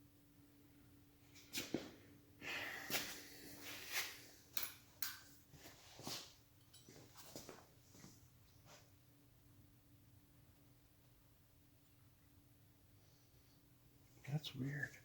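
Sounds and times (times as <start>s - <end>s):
faint steady hum: 0.0s - 15.0s
small parts clicking and tapping: 4.5s - 5.3s.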